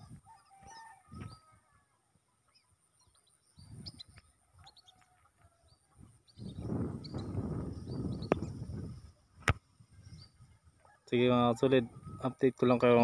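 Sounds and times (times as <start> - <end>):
bird chirps: 2.5 - 5.0, 5.6 - 8.7.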